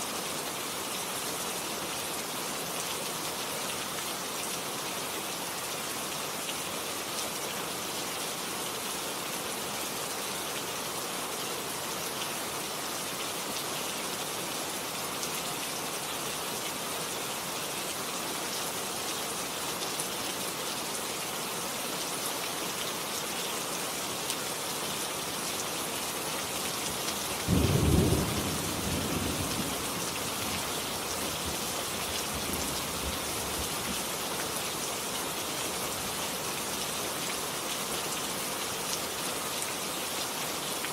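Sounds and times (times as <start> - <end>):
steady rain falling: 0.0 - 40.9
thunder rumbling: 27.5 - 29.8.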